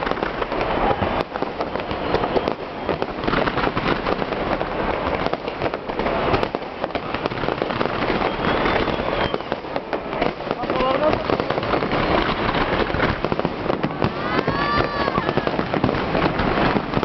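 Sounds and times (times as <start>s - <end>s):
fireworks crackling: 0.0s - 17.0s.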